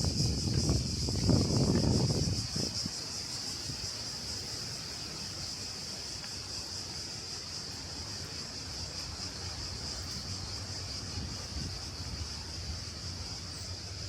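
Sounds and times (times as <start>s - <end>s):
cicadas singing: 0.0s - 14.0s.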